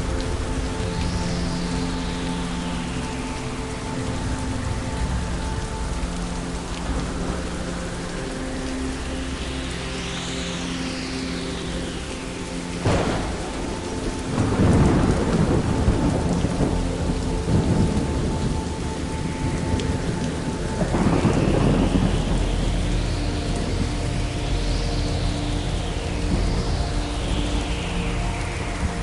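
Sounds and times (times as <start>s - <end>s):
steady rain: 0.0s - 29.0s
thunder crack: 12.8s - 13.8s
rolling thunder rumble: 12.8s - 18.8s, 19.4s - 22.6s.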